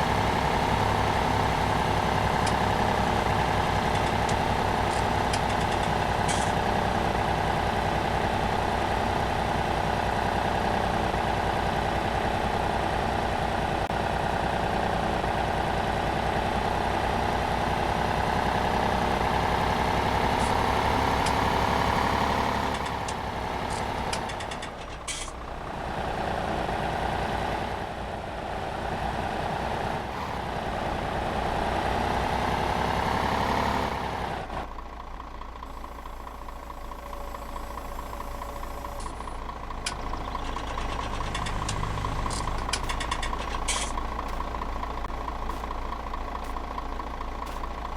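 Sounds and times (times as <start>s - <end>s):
old tractor engine running: 0.0s - 47.9s.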